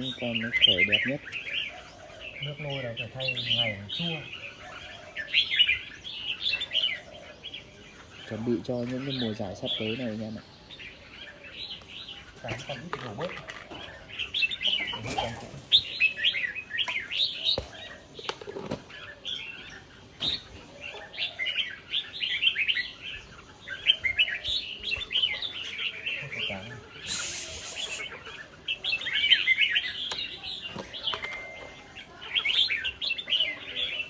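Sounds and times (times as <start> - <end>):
birds chirping and singing: 0.0 - 34.0
brief hiss of noise: 27.0 - 28.2.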